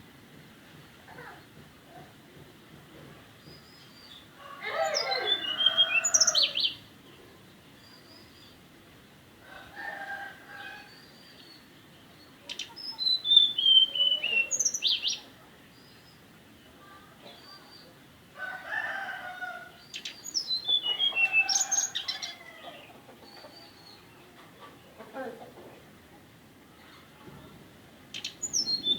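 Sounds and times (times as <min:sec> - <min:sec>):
small bird singing: 0:03.5 - 0:06.9, 0:10.6 - 0:18.0, 0:19.7 - 0:24.3, 0:27.4 - 0:28.9.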